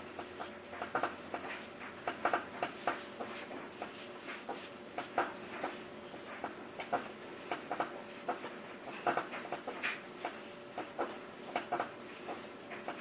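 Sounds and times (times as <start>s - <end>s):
faint steady hum: 0.0s - 13.0s
small hard parts clicking: 5.0s - 13.0s.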